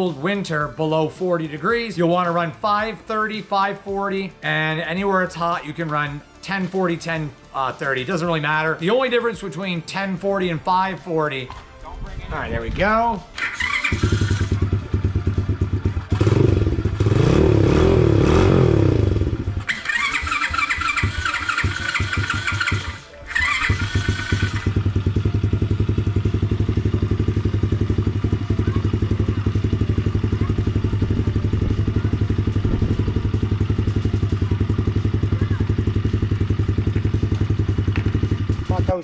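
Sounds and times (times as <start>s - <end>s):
motorcycle engine revving and idling: 13.3s - 39.0s.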